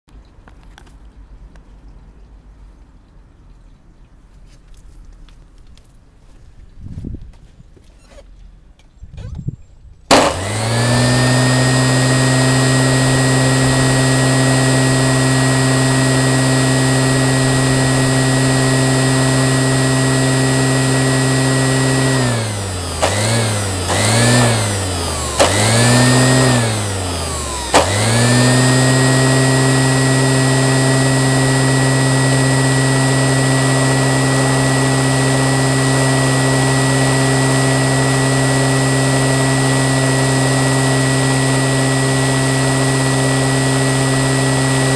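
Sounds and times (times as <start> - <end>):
electric motor whining: 10.1 - 44.9.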